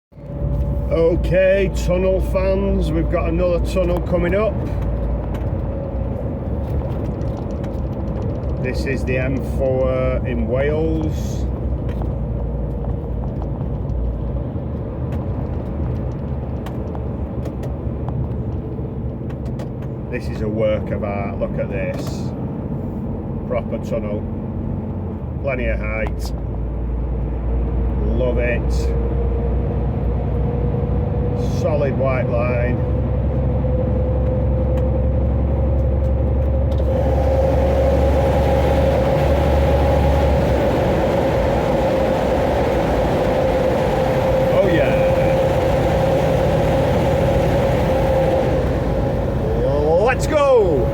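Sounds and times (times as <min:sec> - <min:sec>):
lorry engine and road rumble: 0:00.1 - 0:50.9
air hiss and road noise: 0:36.6 - 0:50.9.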